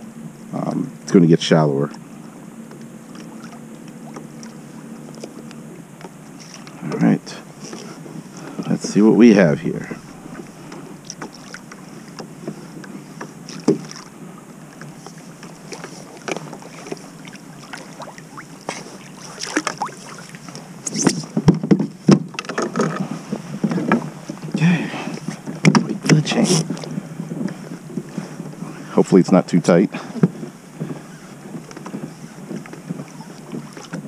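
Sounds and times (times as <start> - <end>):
water noise: 0.0 - 34.0
knocks against hull: 10.1 - 14.1, 20.9 - 28.6, 30.0 - 34.0.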